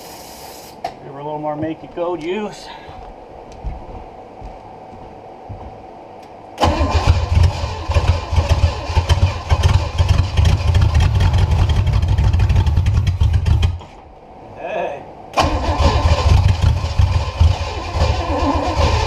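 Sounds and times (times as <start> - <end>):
engine starter cranking: 6.6 - 11.8, 15.4 - 19.0
engine running rough: 6.6 - 13.9, 15.4 - 19.0.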